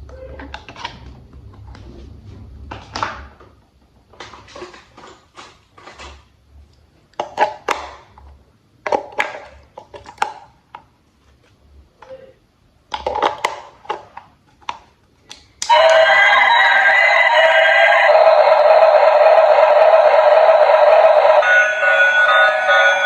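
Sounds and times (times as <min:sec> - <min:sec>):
plastic toy parts clicking: 0:12.9 - 0:15.7.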